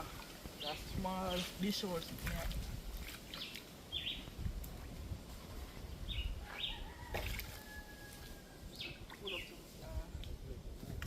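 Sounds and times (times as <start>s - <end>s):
bird chirps: 3.3s - 4.2s.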